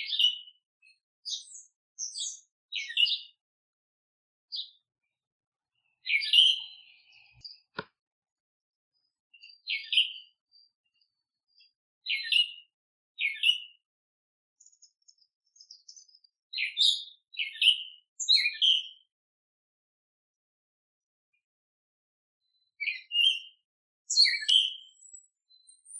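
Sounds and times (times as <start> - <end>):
songbirds chirping: 0.0 - 3.4, 4.5 - 8.0, 8.9 - 13.9, 14.6 - 19.1, 22.4 - 25.9.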